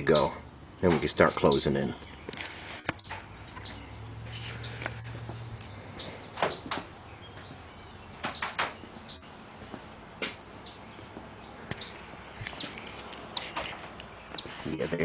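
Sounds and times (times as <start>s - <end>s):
bird alarm chirps: 0.0s - 9.3s, 10.1s - 15.0s.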